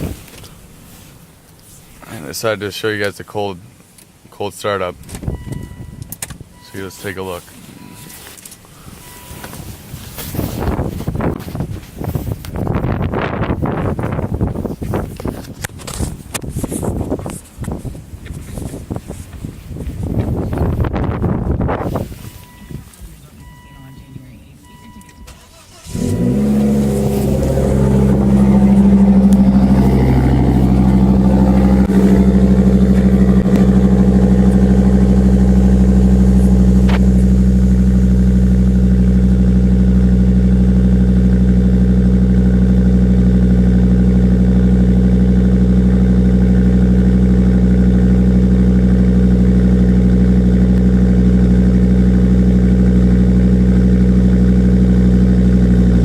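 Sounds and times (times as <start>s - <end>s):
car engine starting and idling: 23.4s - 56.0s.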